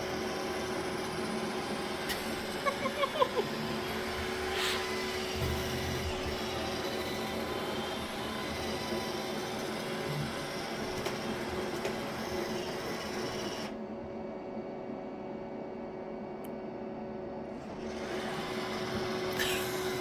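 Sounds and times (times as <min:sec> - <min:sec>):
robot vacuum motor hum: 0:00.0 - 0:13.8, 0:17.6 - 0:20.0
vacuum brush noise: 0:02.1 - 0:13.7, 0:17.6 - 0:20.0.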